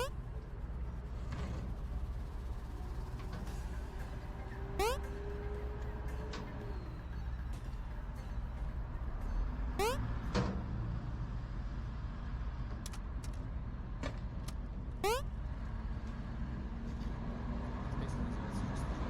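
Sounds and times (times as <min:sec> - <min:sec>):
high rising squeaks: 0:04.8 - 0:05.0.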